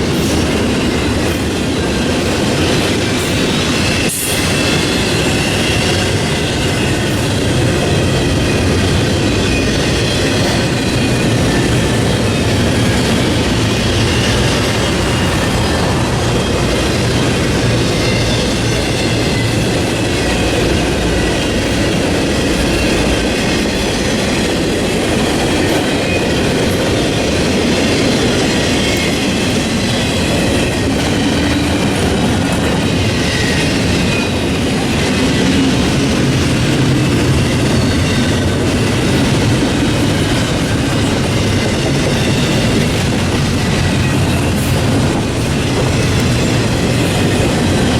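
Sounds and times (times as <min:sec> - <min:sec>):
train wheels clacking over rail joints: 0:00.0 - 0:47.9
high wheel squeals: 0:03.0 - 0:23.8.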